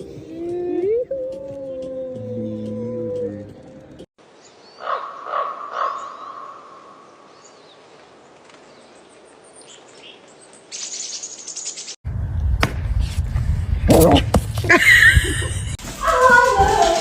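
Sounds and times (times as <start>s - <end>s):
bird chirps: 8.7s - 12.0s
loud low rumbling: 12.1s - 14.7s.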